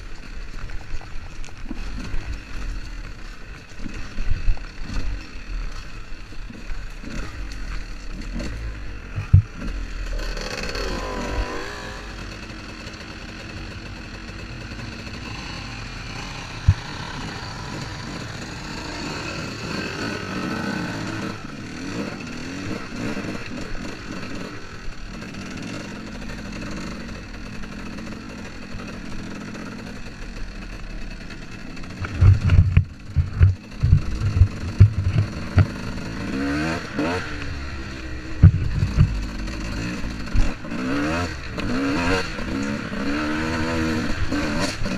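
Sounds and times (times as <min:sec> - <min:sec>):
motocross bike engine revving: 0:00.0 - 0:44.9
heavy low thumps: 0:32.0 - 0:35.8, 0:38.3 - 0:39.6.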